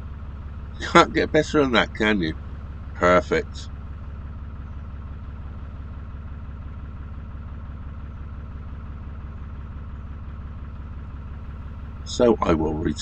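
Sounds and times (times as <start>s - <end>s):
diesel engine idling: 0.0s - 4.2s, 11.5s - 13.0s.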